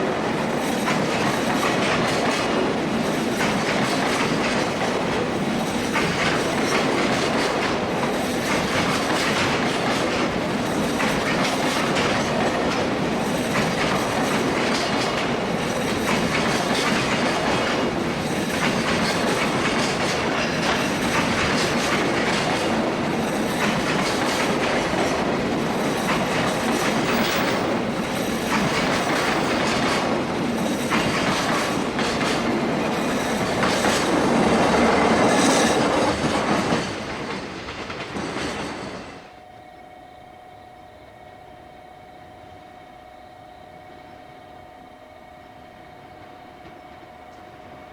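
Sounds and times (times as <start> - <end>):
wheels clacking over rail joints: 0.0 - 39.4
freight train rolling: 0.0 - 47.9.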